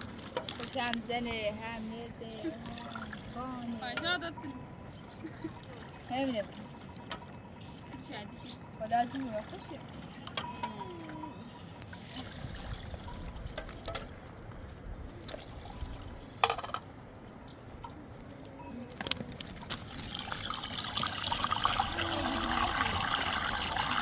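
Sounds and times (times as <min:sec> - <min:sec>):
liquid pouring: 0:19.4 - 0:24.0.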